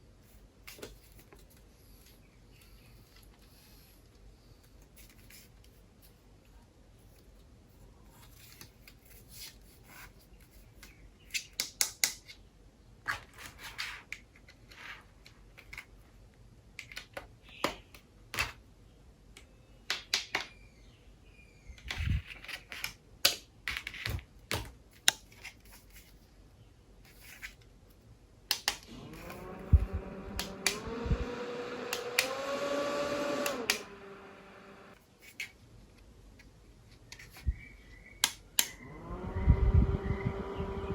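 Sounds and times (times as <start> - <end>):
fan motor whine: 28.7 - 35.0, 38.6 - 40.9.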